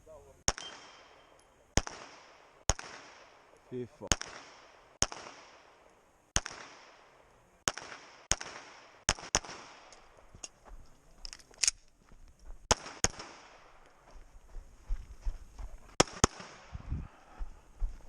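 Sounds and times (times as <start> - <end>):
pistol shots with echo: 0.5 - 5.8, 6.4 - 10.0, 12.7 - 13.7, 16.0 - 16.7.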